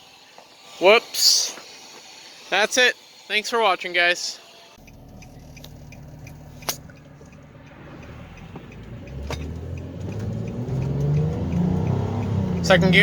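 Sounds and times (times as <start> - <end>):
car engine pulling away: 4.8 - 13.0
sharp click: 4.9 - 7.4.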